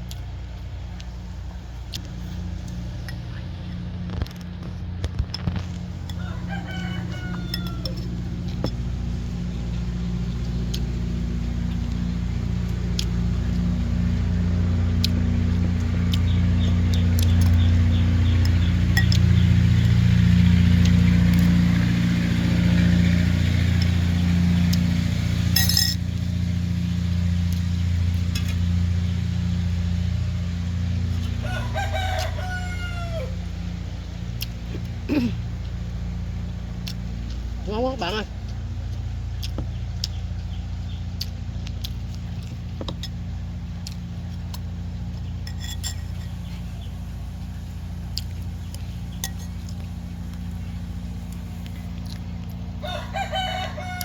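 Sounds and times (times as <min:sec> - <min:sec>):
low engine-like hum: 0:00.0 - 0:54.0
rooster crowing: 0:06.0 - 0:08.5, 0:31.3 - 0:33.7, 0:52.8 - 0:54.0.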